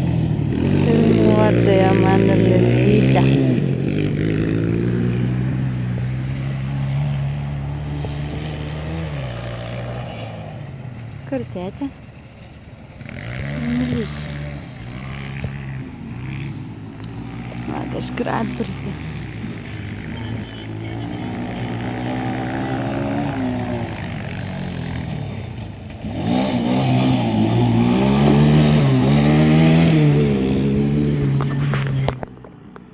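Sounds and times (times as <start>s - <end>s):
motorcycle engine running: 0.0s - 32.9s.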